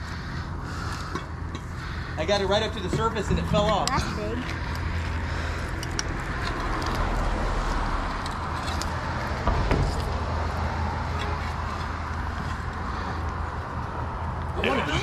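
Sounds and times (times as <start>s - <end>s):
road traffic rumble: 0.0s - 15.0s
thump: 9.4s - 10.2s.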